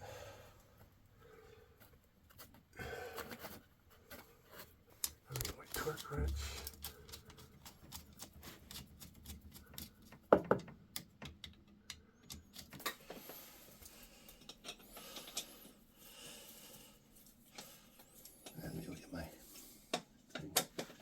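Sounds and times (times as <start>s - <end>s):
hand tools clicking and tapping: 5.0s - 15.6s.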